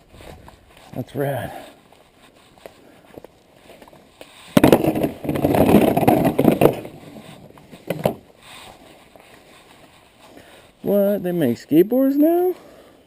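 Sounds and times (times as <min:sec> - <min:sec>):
skateboard wheels rumbling: 0:03.4 - 0:09.1.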